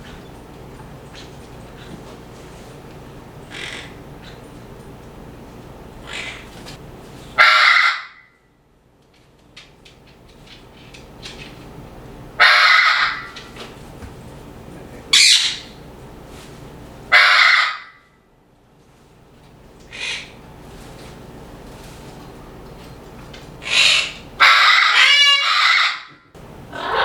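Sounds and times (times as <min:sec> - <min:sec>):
parrots squawking: 0:03.5 - 0:04.4, 0:06.0 - 0:06.6, 0:07.4 - 0:08.2, 0:12.4 - 0:13.4, 0:15.1 - 0:15.8, 0:17.1 - 0:17.9, 0:19.9 - 0:20.4, 0:23.6 - 0:27.0.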